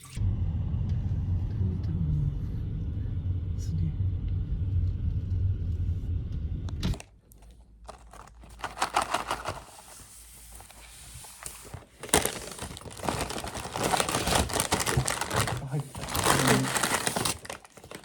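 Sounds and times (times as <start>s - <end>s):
low vehicle rumble: 0.2s - 7.0s
crinkling and rustling: 6.9s - 18.0s.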